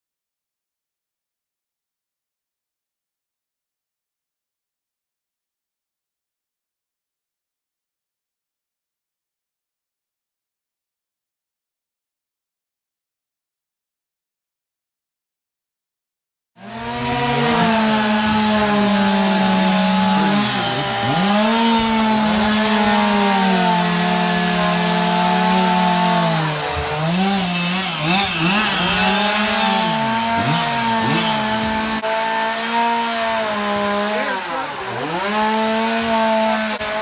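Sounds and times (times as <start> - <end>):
chainsaw cutting wood: 16.6 - 37.0.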